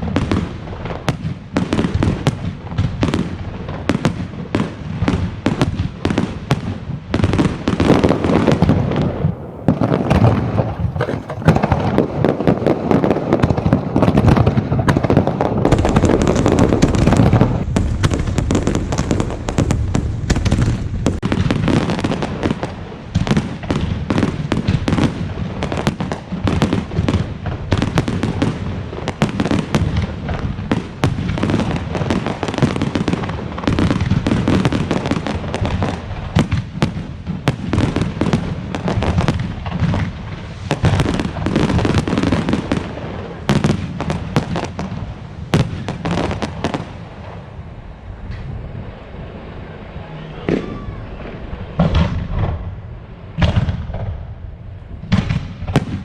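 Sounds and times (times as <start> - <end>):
fireworks bangs and crackling: 0.0 - 56.0
low rumble of heavy shells: 7.9 - 21.2.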